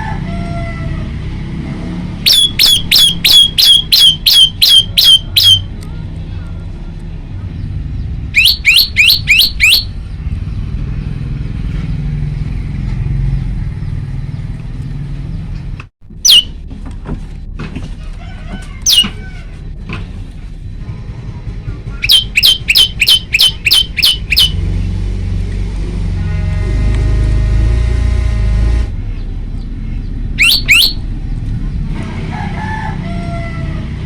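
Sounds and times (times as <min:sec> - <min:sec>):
bird calling sharp falling notes: 0:02.3 - 0:05.7, 0:08.4 - 0:10.0, 0:16.1 - 0:16.5, 0:18.8 - 0:19.4, 0:21.9 - 0:24.6, 0:30.4 - 0:31.1.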